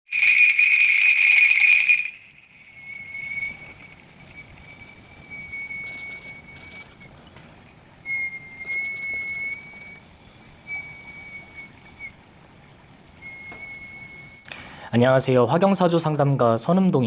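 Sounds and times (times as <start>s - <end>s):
high whistle-like tone: 0.1s - 7.2s, 8.0s - 12.2s, 13.2s - 14.5s.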